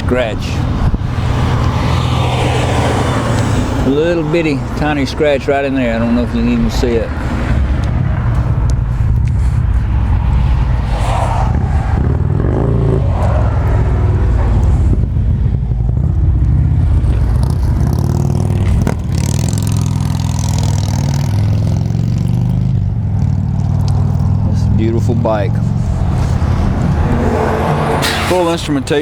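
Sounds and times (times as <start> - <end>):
motorcycle engine idling: 13.7 - 26.8.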